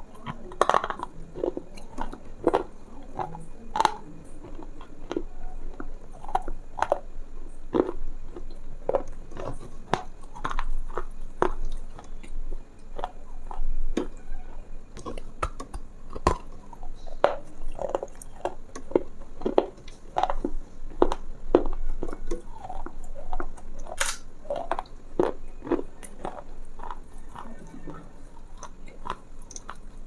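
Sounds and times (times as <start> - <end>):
close-up crunching and clicking: 0.0 - 30.0.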